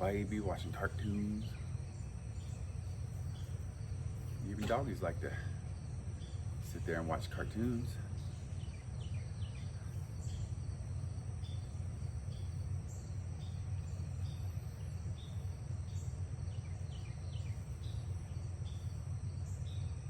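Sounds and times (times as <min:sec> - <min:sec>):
cricket chirping: 0:00.0 - 0:20.0
low background rumble: 0:00.0 - 0:20.0.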